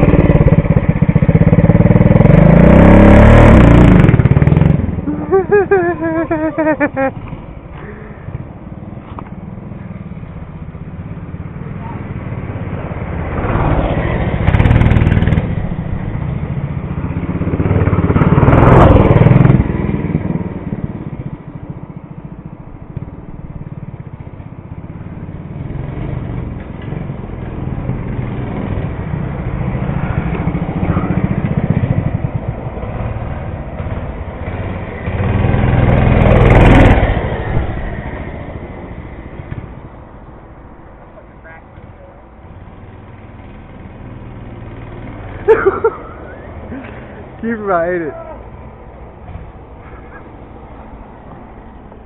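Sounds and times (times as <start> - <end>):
mini bike engine revving: 0.0 - 8.4, 11.8 - 21.3, 25.2 - 38.5, 43.0 - 48.4.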